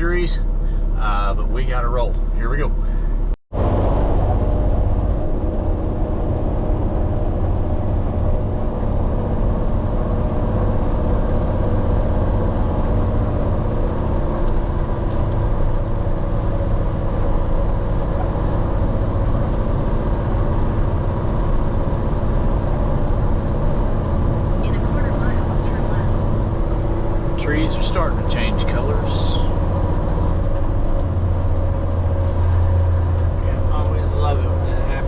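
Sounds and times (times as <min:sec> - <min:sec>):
truck diesel engine running: 0:00.0 - 0:35.0.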